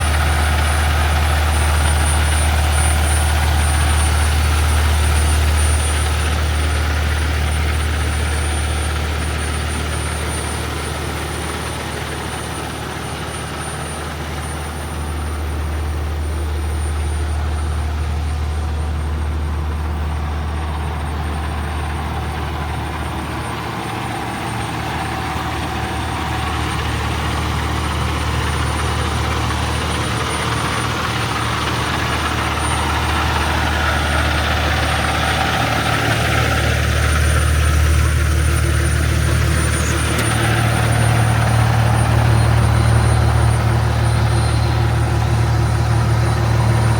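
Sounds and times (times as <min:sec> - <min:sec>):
diesel truck engine idling: 0:00.0 - 0:46.9.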